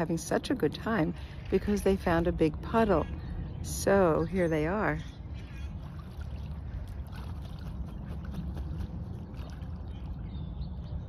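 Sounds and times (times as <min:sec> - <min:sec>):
water splashing: 0:05.7 - 0:10.2.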